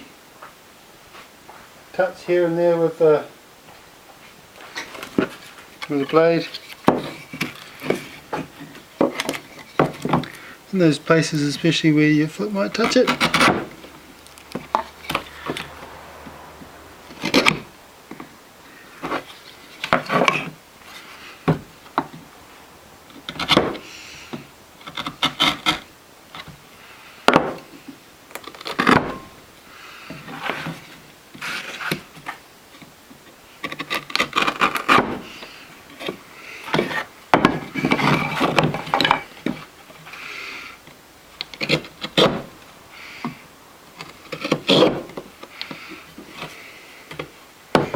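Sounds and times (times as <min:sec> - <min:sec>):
knife paring and scraping wood: 0:04.6 - 0:10.5, 0:12.4 - 0:15.9, 0:17.0 - 0:22.2, 0:23.1 - 0:26.6, 0:27.2 - 0:29.4, 0:30.0 - 0:32.9, 0:33.6 - 0:47.9.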